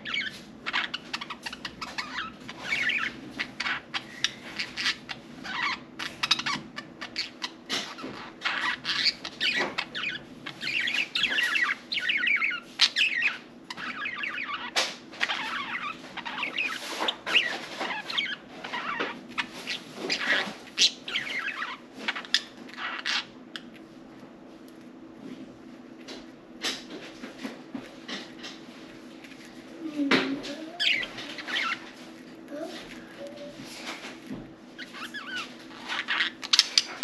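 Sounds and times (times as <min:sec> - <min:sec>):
budgerigars chattering: 0:00.1 - 0:23.3.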